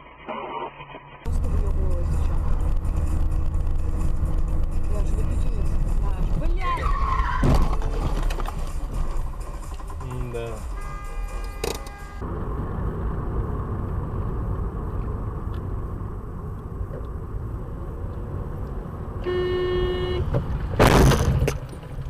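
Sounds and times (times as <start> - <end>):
car road and engine rumble: 0.0 - 22.0
car horn: 10.0 - 12.3, 19.2 - 20.4
loud bang: 20.8 - 21.5.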